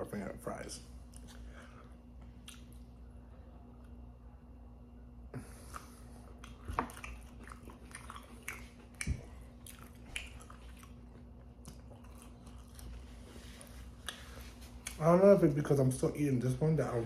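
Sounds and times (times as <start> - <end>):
crunchy chewing: 2.2 - 3.0, 5.6 - 15.0.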